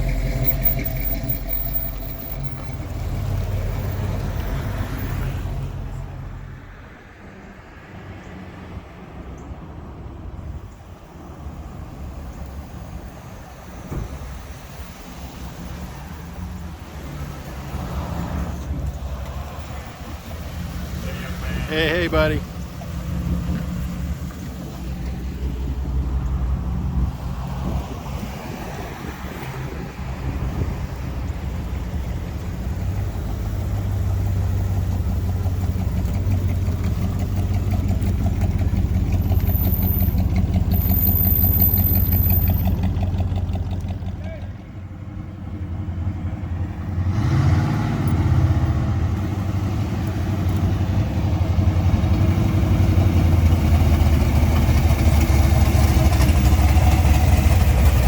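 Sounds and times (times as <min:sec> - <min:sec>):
vehicle engine rumbling: 0:00.0 - 0:58.0
vehicle engine idling: 0:30.6 - 0:46.9, 0:49.2 - 0:58.0.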